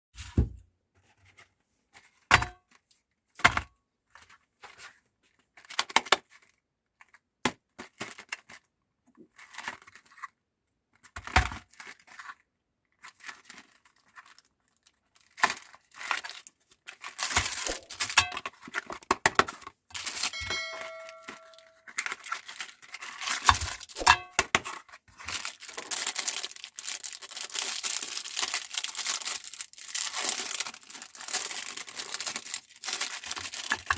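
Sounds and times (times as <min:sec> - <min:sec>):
plastic wrapper crinkling: 0:13.0 - 0:19.1, 0:19.9 - 0:33.9.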